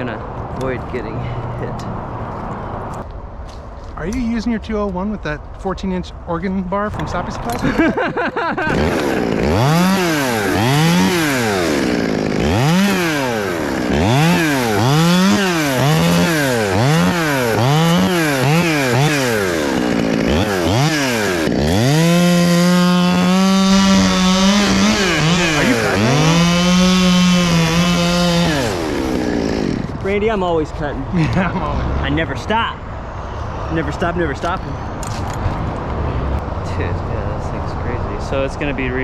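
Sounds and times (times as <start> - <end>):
chainsaw revving: 7.6 - 30.1.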